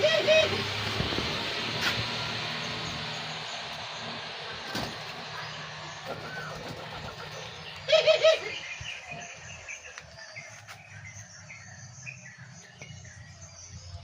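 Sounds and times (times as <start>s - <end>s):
dove cooing: 0.0s - 0.8s, 4.6s - 9.2s.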